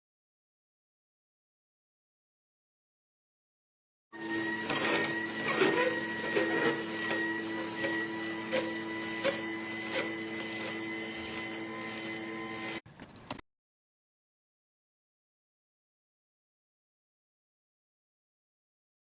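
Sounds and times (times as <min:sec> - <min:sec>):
juicer motor humming: 0:04.2 - 0:12.8.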